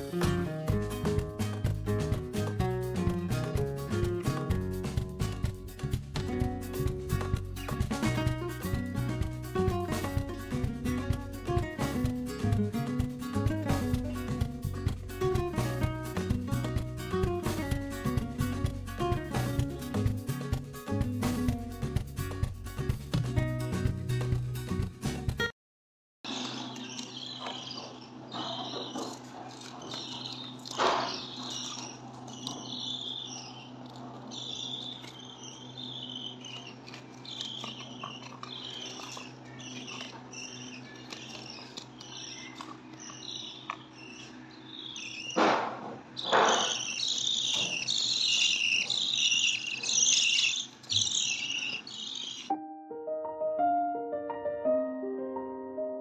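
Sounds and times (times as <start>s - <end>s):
small birds chirping: 0.0s - 24.4s, 26.3s - 45.4s, 46.1s - 52.6s.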